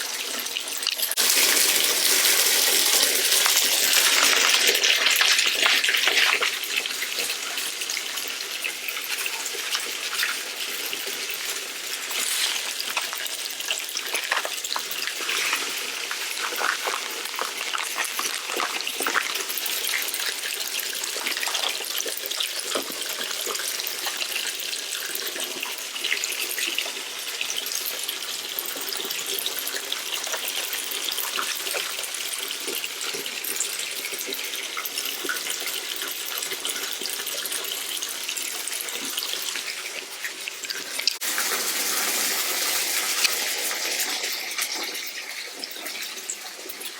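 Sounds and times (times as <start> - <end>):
running water rushing: 0.7 - 24.3.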